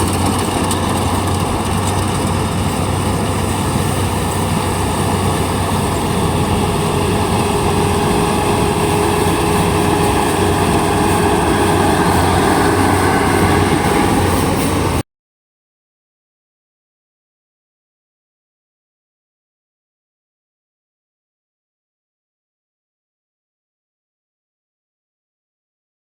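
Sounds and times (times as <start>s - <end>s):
combine harvester drone: 0.0s - 15.0s.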